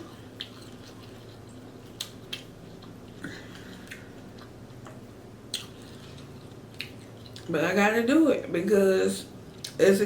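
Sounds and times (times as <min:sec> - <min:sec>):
mouth clicks and smacks chewing: 0:00.4 - 0:07.5.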